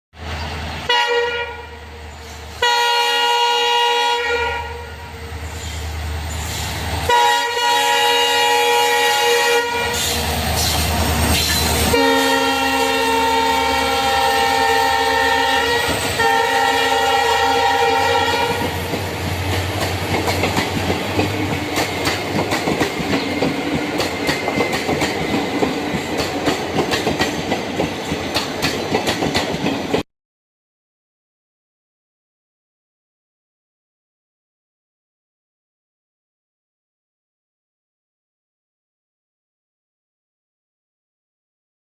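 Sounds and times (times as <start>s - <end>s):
train horn blasts: 0.9s - 2.0s, 2.6s - 5.6s, 7.1s - 10.3s, 11.5s - 18.8s
train wheels clickety-clack: 9.9s - 12.0s, 18.2s - 30.0s.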